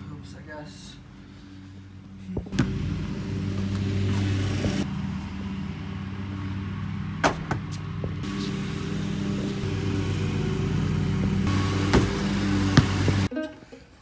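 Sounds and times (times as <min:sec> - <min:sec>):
basketball bouncing on concrete: 0:02.3 - 0:04.8, 0:07.2 - 0:08.2, 0:11.8 - 0:13.3.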